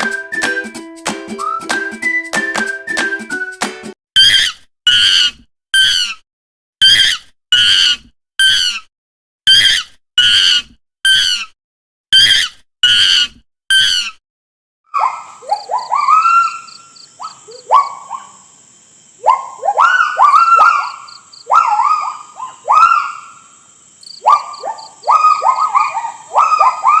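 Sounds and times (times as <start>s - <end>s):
monkey hooting: 4.2s - 6.2s, 6.8s - 8.8s, 9.5s - 11.5s, 12.2s - 14.1s, 14.9s - 18.4s, 19.2s - 23.4s, 24.2s - 27.0s.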